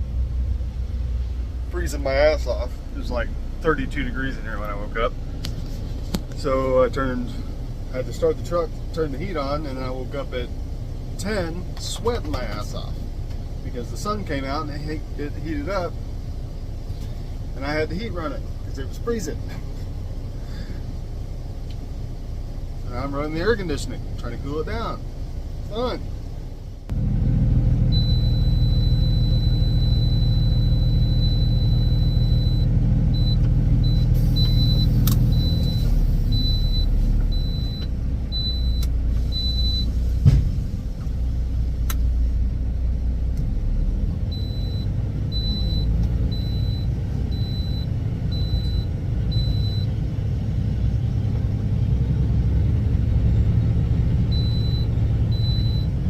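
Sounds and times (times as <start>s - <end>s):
truck engine rumbling: 0.0s - 56.0s
high-pitched beeping: 28.0s - 39.9s, 44.3s - 49.9s, 54.3s - 55.9s.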